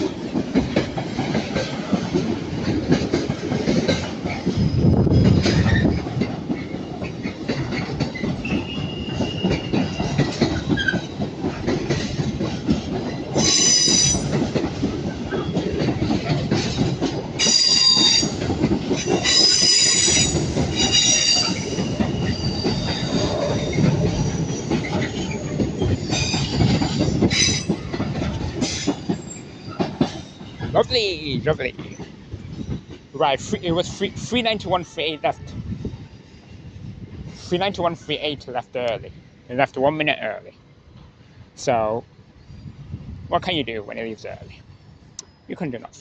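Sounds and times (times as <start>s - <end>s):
train wheels rumbling over rail joints: 0.0s - 34.8s
wheel flange squeals: 8.1s - 11.1s, 13.4s - 14.4s, 17.4s - 27.7s.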